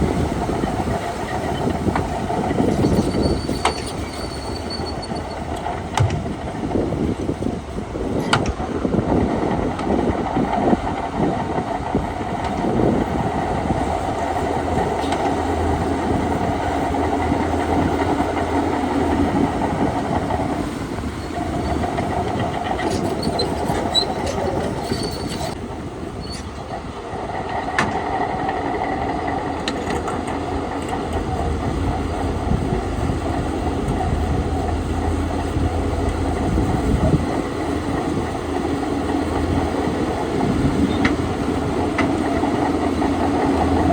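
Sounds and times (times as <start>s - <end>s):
bulldozer diesel engine under load: 0.0s - 43.9s
steel tracks clanking: 0.0s - 43.9s.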